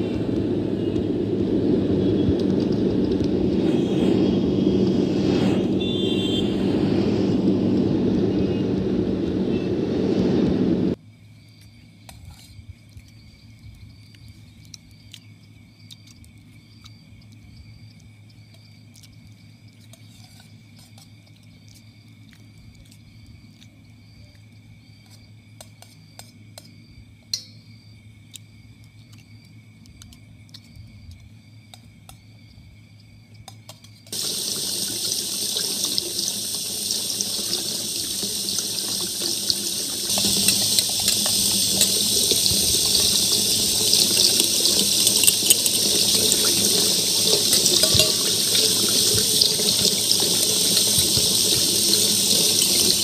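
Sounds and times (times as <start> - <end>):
tap running into metal bowl: 34.2 - 53.0.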